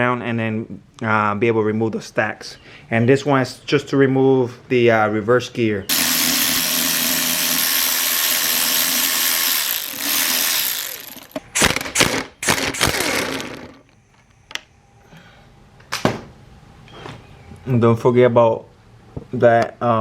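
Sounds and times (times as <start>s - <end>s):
power tool spinning bolt: 5.9s - 14.0s.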